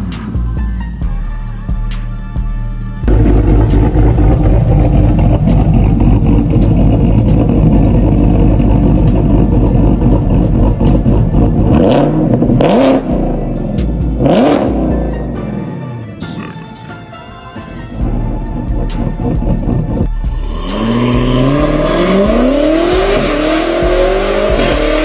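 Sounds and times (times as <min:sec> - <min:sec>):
car engine revving loud exhaust: 0:03.0 - 0:15.1, 0:18.1 - 0:25.0.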